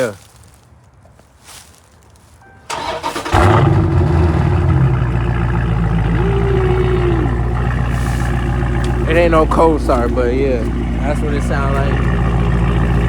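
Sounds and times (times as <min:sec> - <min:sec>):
car engine revving and idling: 0:02.7 - 0:13.0
starter motor cranking: 0:02.7 - 0:13.0.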